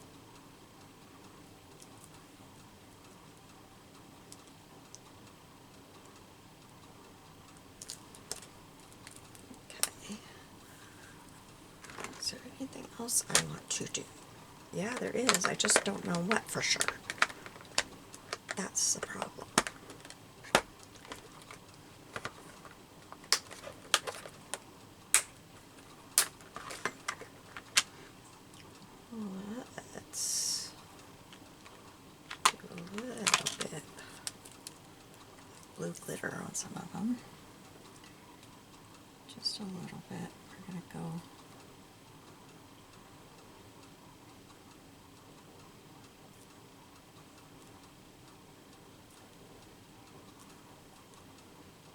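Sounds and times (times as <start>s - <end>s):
craft items clicking on a desk: 11.8s - 14.1s, 14.8s - 28.0s, 31.1s - 34.8s.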